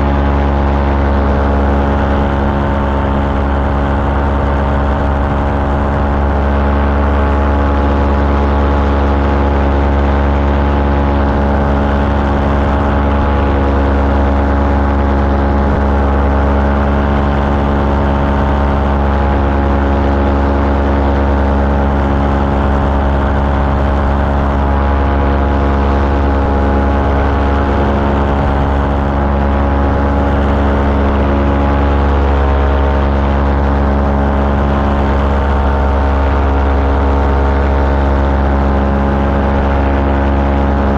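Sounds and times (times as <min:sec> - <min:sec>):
small aircraft engine droning: 0:00.0 - 0:40.9.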